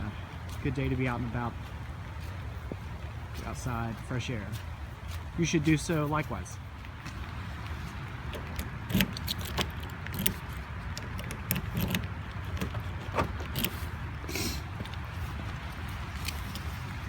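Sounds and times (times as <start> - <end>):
keys jingling and clicking: 8.3 - 13.8.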